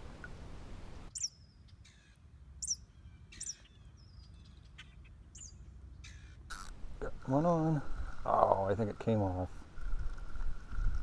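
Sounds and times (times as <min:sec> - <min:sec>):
songbird chirping: 0:01.1 - 0:09.5.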